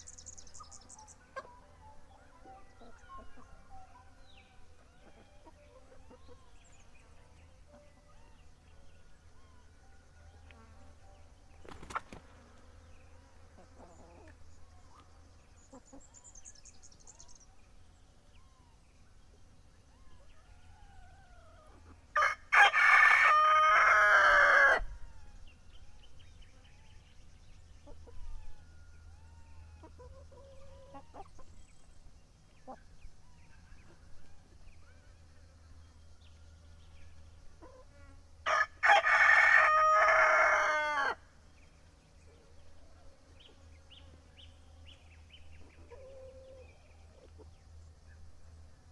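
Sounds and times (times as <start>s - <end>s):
faint bird chirps: 0.0s - 12.2s, 24.8s - 38.0s
chicken clucks: 0.5s - 4.0s, 4.8s - 6.6s, 29.8s - 31.6s, 45.6s - 47.6s
rooster crowing: 22.2s - 25.2s, 38.5s - 41.2s.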